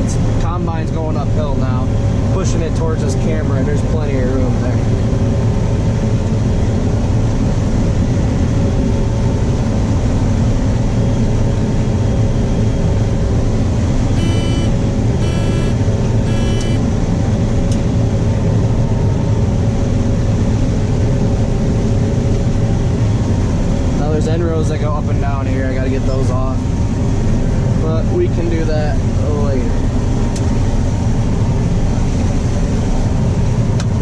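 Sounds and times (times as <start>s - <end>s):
combine harvester drone: 0.0s - 34.0s
short electronic beeps: 14.1s - 16.9s.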